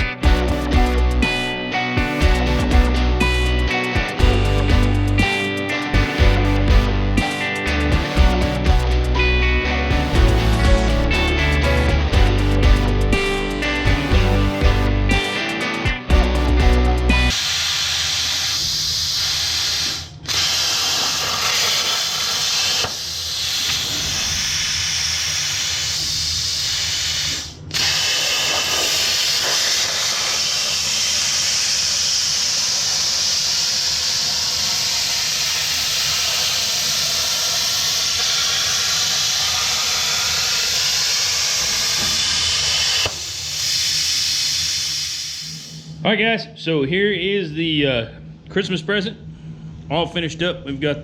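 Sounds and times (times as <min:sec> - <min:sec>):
plasma torch cutting steel: 0:17.3 - 0:45.9.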